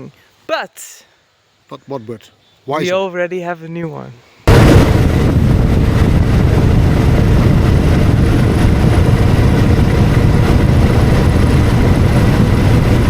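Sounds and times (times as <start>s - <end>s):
motorcycle engine running: 4.5s - 13.0s
wind noise on microphone: 4.5s - 13.0s.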